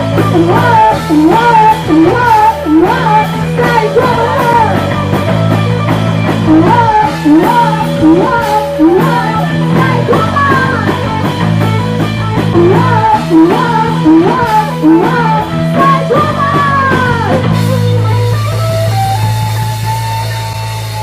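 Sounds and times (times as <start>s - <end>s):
electric guitar bent notes: 0.0s - 21.0s
live rock band playing: 0.0s - 21.0s.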